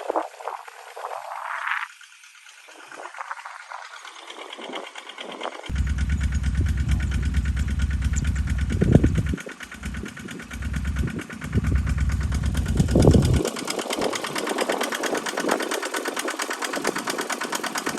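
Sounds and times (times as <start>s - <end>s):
small tractor engine running: 0.0s - 17.9s
heavy low rumble: 5.7s - 14.6s.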